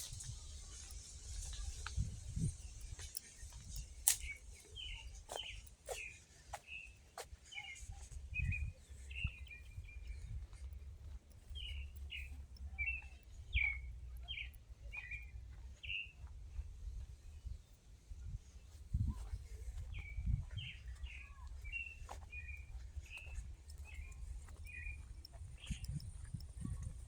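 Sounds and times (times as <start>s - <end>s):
bird chirping: 0.0s - 16.3s, 19.8s - 26.7s
sharp clicks: 2.8s - 4.7s.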